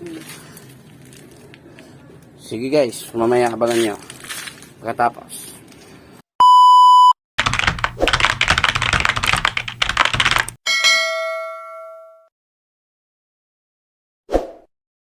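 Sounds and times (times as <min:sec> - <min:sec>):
keyboard typing clatter: 0:07.4 - 0:10.6
bell ding: 0:10.7 - 0:12.3.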